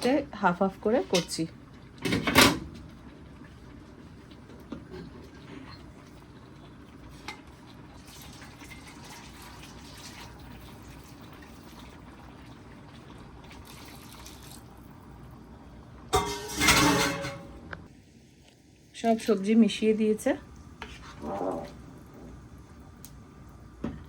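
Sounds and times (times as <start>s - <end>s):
spoon scraping metal pot: 16.2s - 17.4s.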